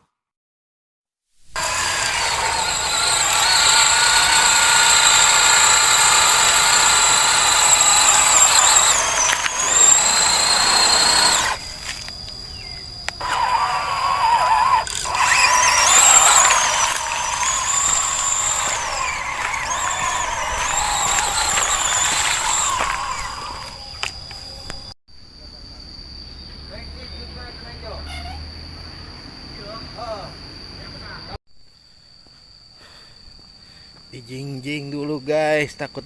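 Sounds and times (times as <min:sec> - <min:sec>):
rc car motor whining: 0:01.6 - 0:24.9.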